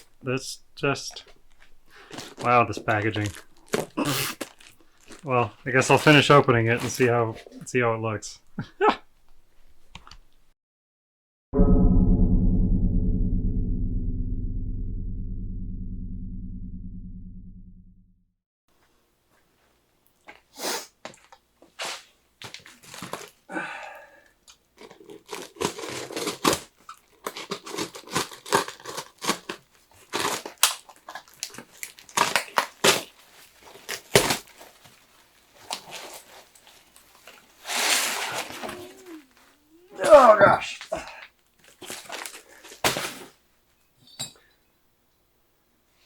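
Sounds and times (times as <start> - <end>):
packaging rustle: 1.4 - 7.1, 22.4 - 23.4, 24.8 - 39.5, 41.4 - 43.4
packaging tearing and crinkling: 1.5 - 5.3, 21.8 - 23.4, 24.8 - 39.5, 41.6 - 43.4.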